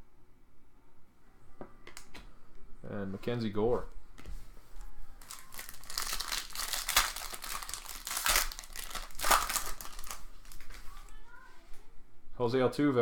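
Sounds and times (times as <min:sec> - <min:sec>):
wrapper crinkling and tearing: 0:05.2 - 0:11.2.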